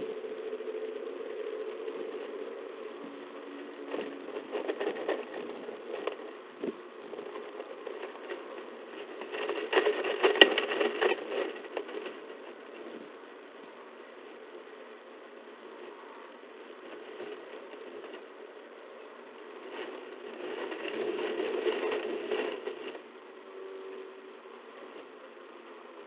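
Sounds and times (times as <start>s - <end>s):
low hum: 0.0s - 26.0s
scraping and clicking in nest box: 3.8s - 13.1s.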